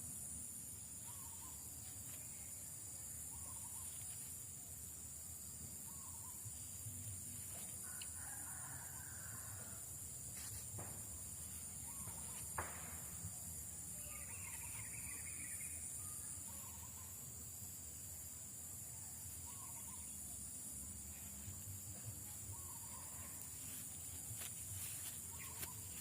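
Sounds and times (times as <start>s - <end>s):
high insect drone: 0.0s - 26.0s
distant bird calls: 1.1s - 1.6s.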